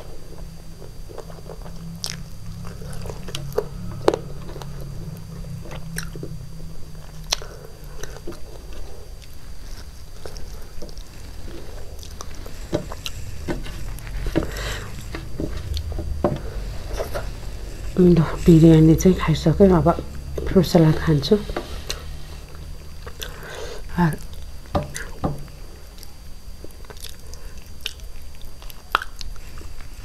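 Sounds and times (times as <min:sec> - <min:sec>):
person chewing with wet mouth clicks: 0:00.8 - 0:02.3, 0:07.2 - 0:09.4, 0:26.0 - 0:29.4.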